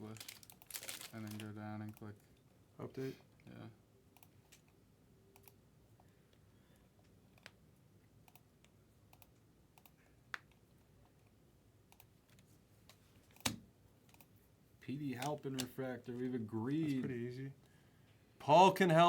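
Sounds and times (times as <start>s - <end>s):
keyboard and mouse clicks: 5.4s - 5.6s, 8.2s - 11.2s, 11.9s - 14.4s.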